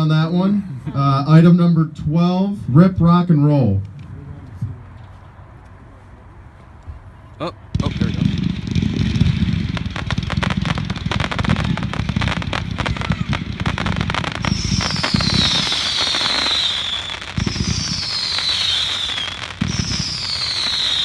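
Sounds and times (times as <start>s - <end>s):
falling firework whistle: 7.8s - 21.0s
firework launch thump: 7.8s - 21.0s
fireworks shots and crackling bangs: 7.8s - 21.0s.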